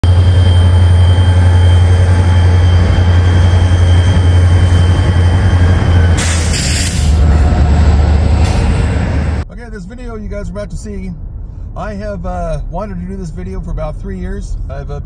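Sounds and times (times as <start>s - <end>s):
thin high tone: 0.0s - 7.2s
diesel locomotive drone: 0.0s - 14.7s
loud hiss: 6.2s - 7.3s.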